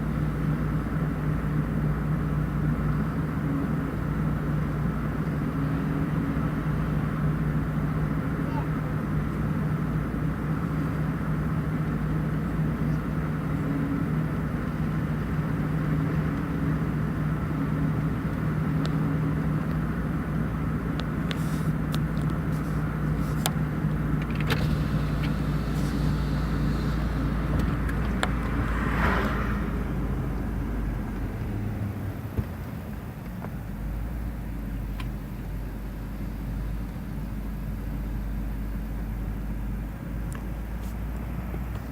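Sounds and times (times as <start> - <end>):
car engine hum: 0.0 - 41.9
road rumble: 0.0 - 41.9
short hiss: 21.3 - 21.8, 24.5 - 27.2.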